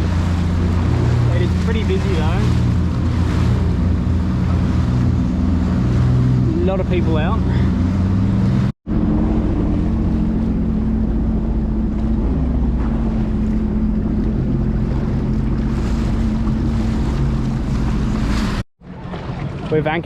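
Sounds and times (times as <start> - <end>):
jet ski engine running: 0.0 - 20.0
water wash: 0.0 - 20.0.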